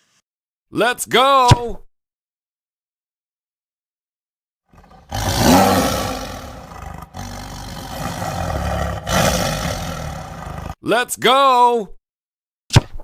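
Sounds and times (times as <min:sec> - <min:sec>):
loud rough roar with low rumble: 0:04.8 - 0:10.8.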